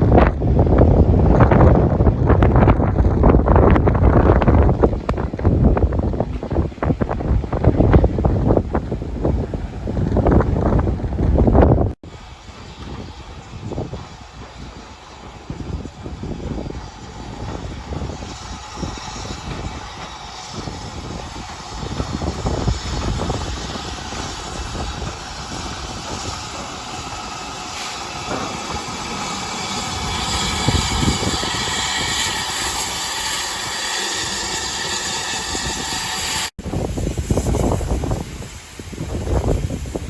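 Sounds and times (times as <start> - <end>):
steam train running: 0.0 - 40.0
wind buffeting microphone: 0.0 - 40.0
broad hiss: 12.1 - 40.0.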